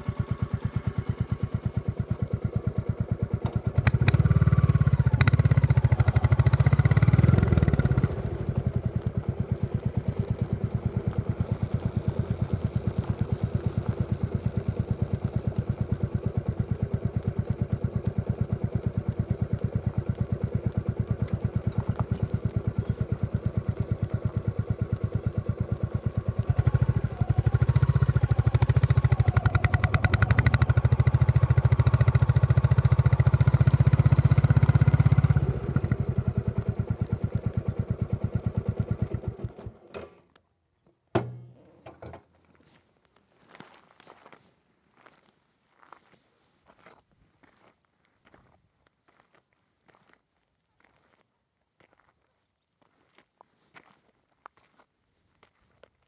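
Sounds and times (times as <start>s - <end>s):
motorcycle engine thumping: 19.0s - 30.8s, 41.1s - 42.3s.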